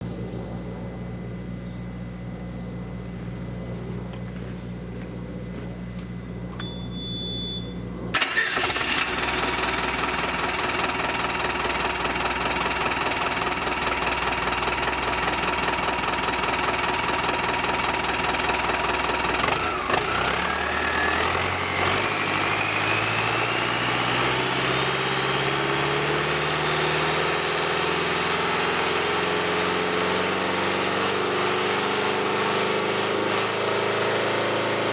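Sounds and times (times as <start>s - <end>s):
steady low hum: 0.0s - 8.2s
diesel engine starting and running: 6.4s - 34.9s
short beep: 6.6s - 7.8s.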